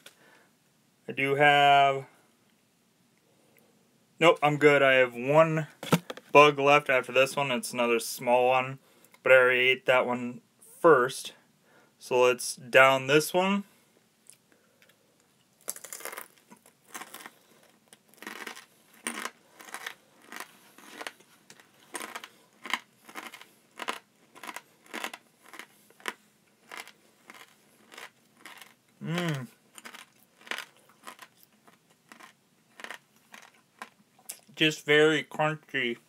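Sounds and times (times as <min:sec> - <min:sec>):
crunchy chewing: 0:15.6 - 0:34.5
person humming: 0:29.0 - 0:29.6.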